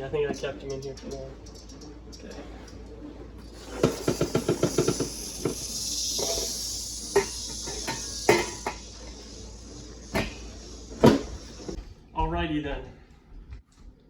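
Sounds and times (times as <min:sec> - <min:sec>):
cicadas clicking: 0:00.0 - 0:02.8, 0:03.4 - 0:11.8
steady high hiss: 0:03.4 - 0:11.8.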